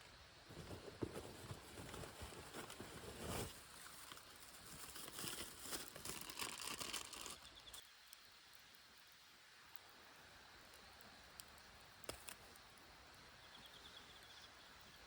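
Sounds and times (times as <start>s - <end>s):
rustling and crinkling: 0.4s - 7.8s.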